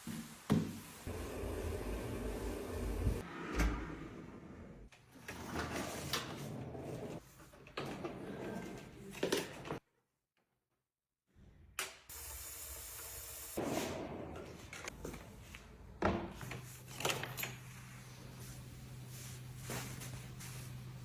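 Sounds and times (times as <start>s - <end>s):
cabinet doors and drawers shutting: 2.8s - 4.7s.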